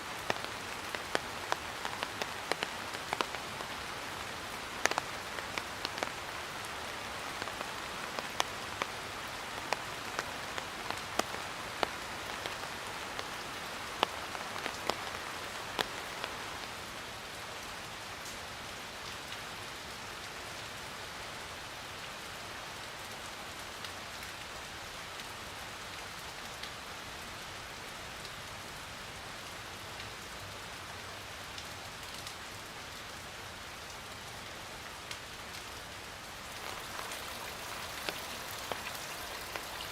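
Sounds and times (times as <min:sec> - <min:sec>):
steady rain falling: 0:00.0 - 0:39.9
sharp water drips clicking: 0:36.4 - 0:39.9.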